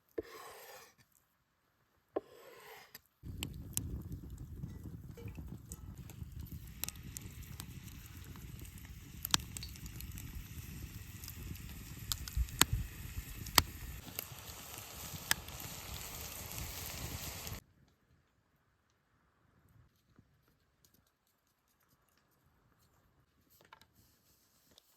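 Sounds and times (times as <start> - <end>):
sharp clicks and crackles: 3.3 - 17.6.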